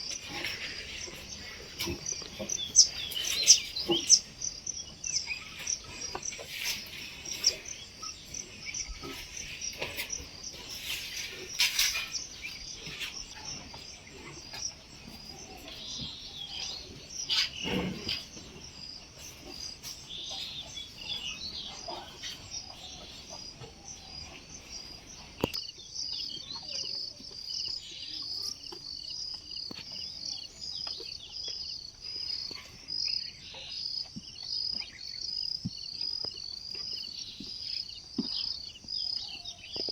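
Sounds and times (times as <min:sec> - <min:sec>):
birds calling and chirping: 0:00.0 - 0:39.9
crickets chirping: 0:00.0 - 0:39.9.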